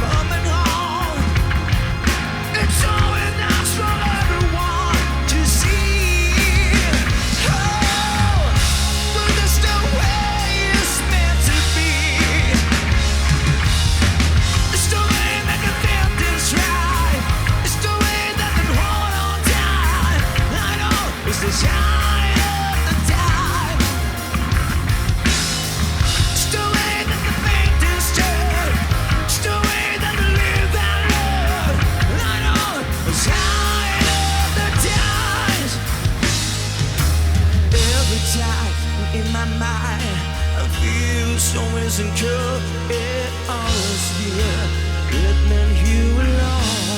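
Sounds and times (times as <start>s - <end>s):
rock band playing loudly: 0.0s - 46.9s.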